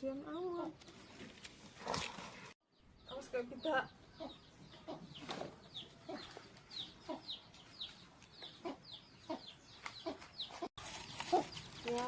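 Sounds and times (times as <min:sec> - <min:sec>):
baby birds peeping: 0:02.8 - 0:12.0.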